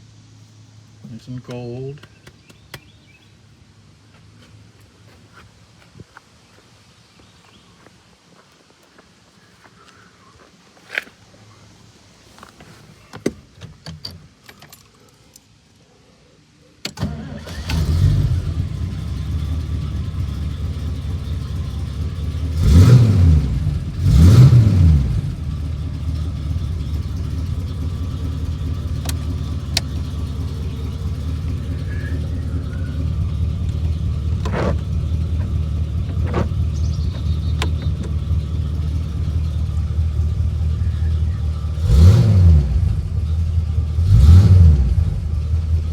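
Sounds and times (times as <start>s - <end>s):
car engine idling: 16.9s - 45.9s
car engine starting and revving: 16.9s - 45.9s.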